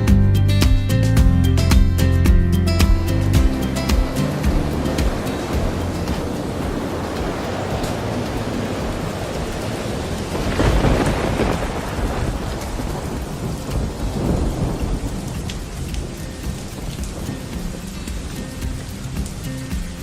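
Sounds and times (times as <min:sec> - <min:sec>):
rain falling: 0:00.0 - 0:20.0
raindrop ticks: 0:02.8 - 0:20.0
thunder rumbling: 0:03.4 - 0:19.4.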